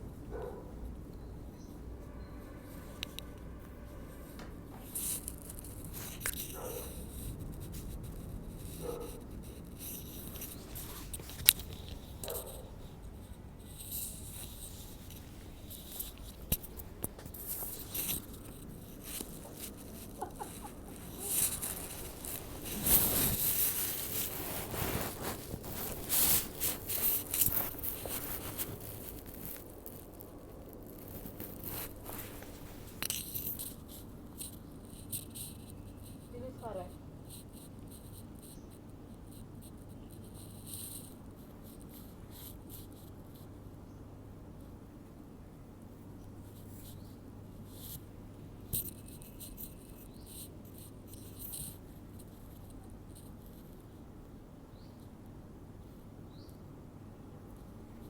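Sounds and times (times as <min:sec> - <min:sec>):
puppies scuffling and pattering: 0:04.2 - 0:12.9, 0:13.7 - 0:36.2.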